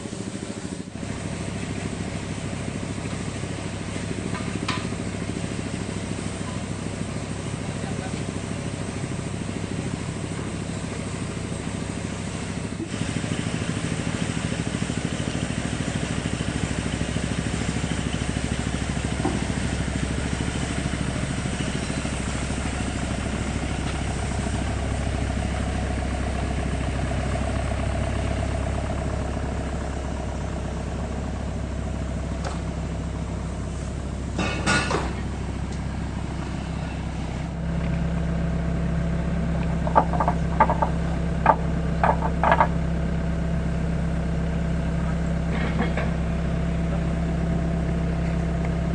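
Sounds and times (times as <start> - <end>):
excavator diesel engine running: 0.0 - 48.9
knocking: 39.8 - 42.7.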